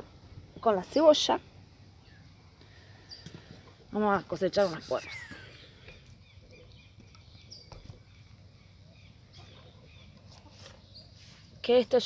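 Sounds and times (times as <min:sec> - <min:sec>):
faint bird chirps: 0:02.0 - 0:03.5.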